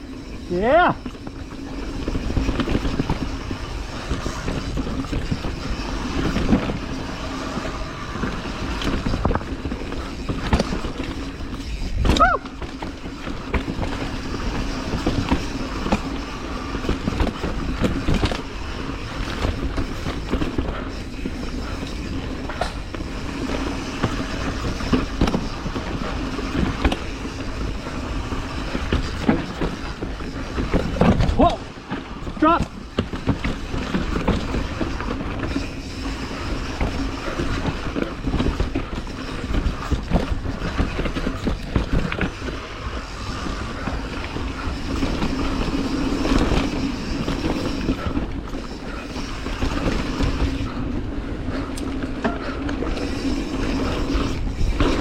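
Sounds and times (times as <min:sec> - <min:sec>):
bike rattling over roots and rocks: 0:00.0 - 0:55.0
rising squeal: 0:33.6 - 0:51.6.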